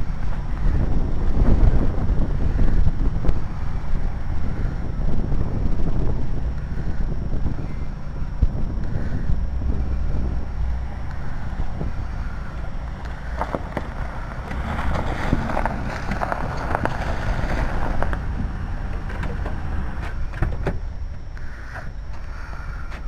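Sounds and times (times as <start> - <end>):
wind buffeting microphone: 0.0 - 23.0
car driving through snow: 9.0 - 20.3.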